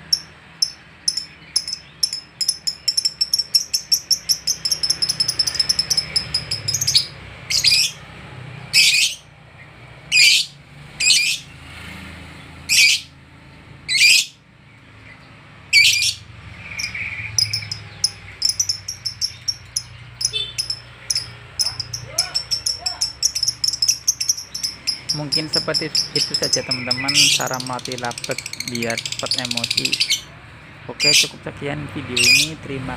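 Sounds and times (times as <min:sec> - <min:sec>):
bird chattering: 0:00.0 - 0:08.0, 0:08.8 - 0:09.3, 0:10.1 - 0:11.5, 0:12.7 - 0:13.1, 0:13.9 - 0:14.4, 0:15.7 - 0:31.4, 0:32.1 - 0:32.6
bird shrill screeches: 0:12.7 - 0:13.1.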